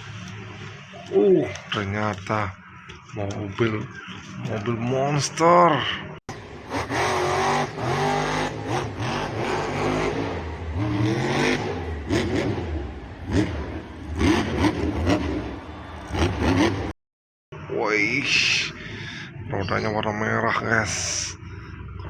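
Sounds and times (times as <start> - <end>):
vehicle engine revving: 6.3 - 17.0.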